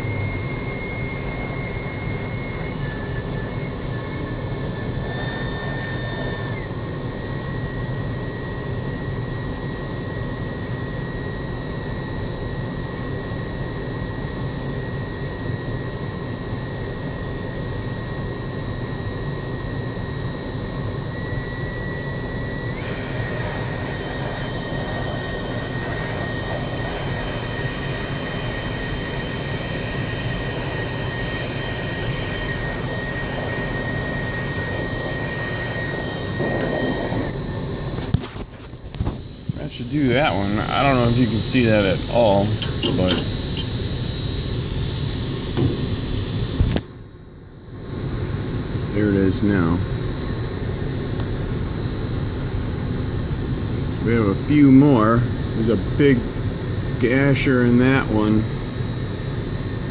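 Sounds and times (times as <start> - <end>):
torch flame rushing: 22.7 - 39.3.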